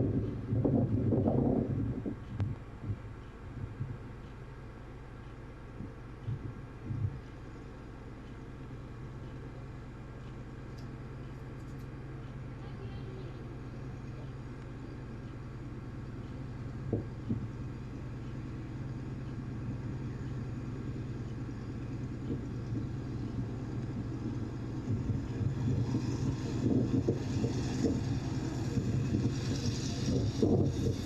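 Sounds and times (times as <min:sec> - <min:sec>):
rushing wind noise: 0:00.0 - 0:04.0, 0:22.0 - 0:31.0
biplane radial engine running: 0:00.0 - 0:31.0.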